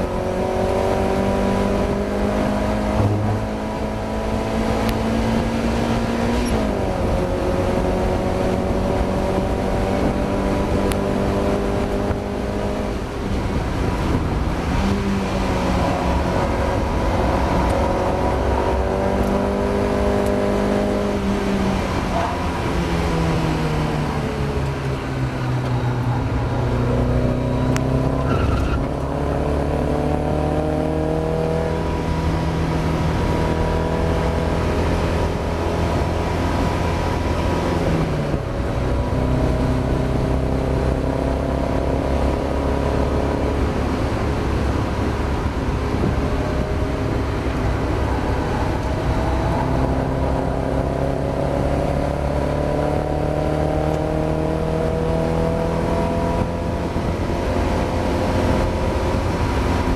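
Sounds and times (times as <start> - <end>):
race car engine revving: 0.0 - 59.9
road and wind noise: 0.0 - 59.9.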